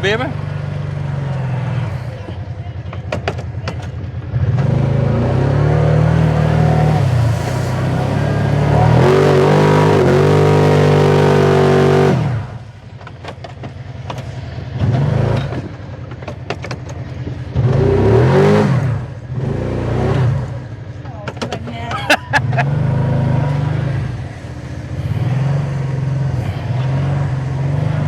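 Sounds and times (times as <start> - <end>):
vehicle engine revving hard: 4.3 - 12.7, 14.7 - 15.8, 17.5 - 20.7, 22.0 - 28.0.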